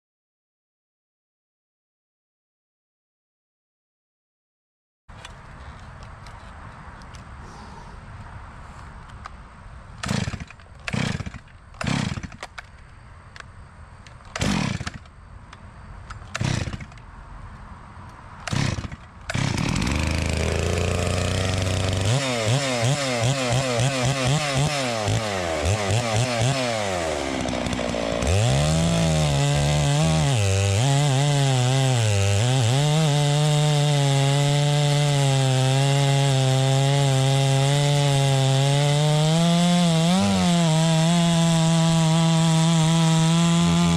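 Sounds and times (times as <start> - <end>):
chainsaw engine idling and revving: 10.0 - 12.5, 14.3 - 15.1, 16.3 - 17.0, 18.4 - 43.9
chainsaw pull-start attempts: 10.0 - 12.7, 14.2 - 15.1, 16.2 - 17.0, 18.4 - 43.9.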